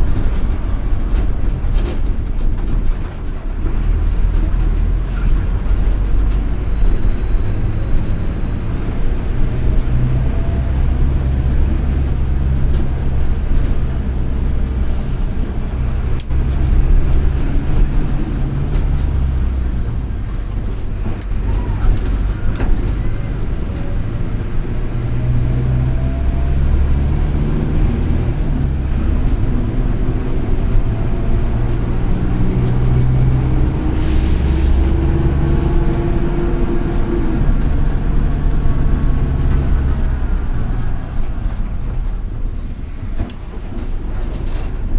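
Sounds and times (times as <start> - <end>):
bus diesel engine running: 0.0 - 44.9
turbocharger whistling: 6.6 - 8.5, 40.3 - 43.2
air brake hiss: 33.9 - 35.0.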